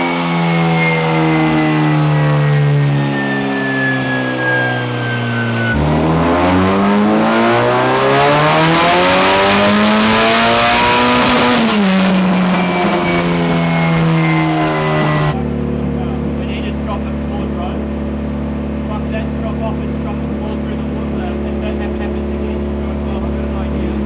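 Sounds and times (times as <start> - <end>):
car engine revving: 0.0 - 15.4.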